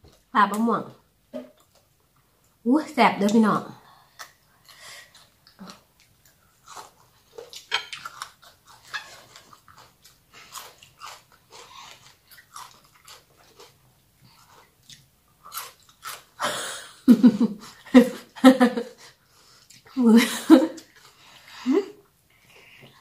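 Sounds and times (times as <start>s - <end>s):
chewing crunchy salad: 4.1s - 16.4s, 19.0s - 20.0s.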